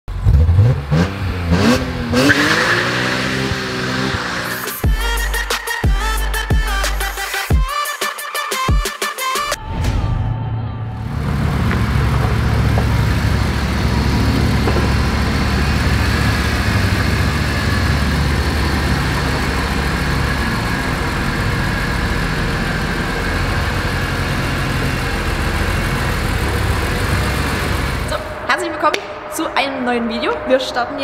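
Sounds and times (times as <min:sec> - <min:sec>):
car engine idling: 0:11.0 - 0:30.3.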